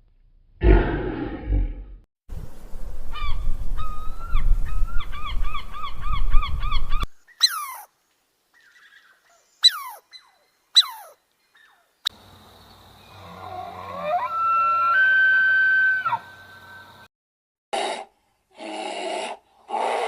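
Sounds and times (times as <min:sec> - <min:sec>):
repeated bird calls: 0:03.1 - 0:07.9, 0:08.6 - 0:13.3.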